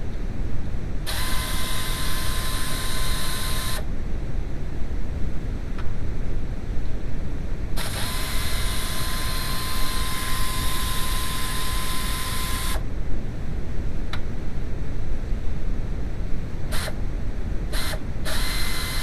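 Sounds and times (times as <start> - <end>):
high whine: 0.0 - 13.2
hiss: 16.7 - 17.0.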